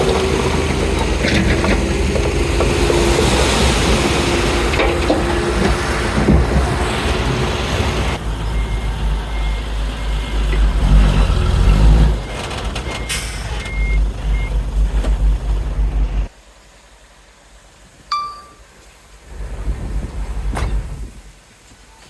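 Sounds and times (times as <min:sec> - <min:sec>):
bulldozer diesel engine running: 0:00.0 - 0:16.3
reversing alarm beeping: 0:08.5 - 0:10.6, 0:11.7 - 0:14.6
short ringing tone: 0:18.1 - 0:18.6.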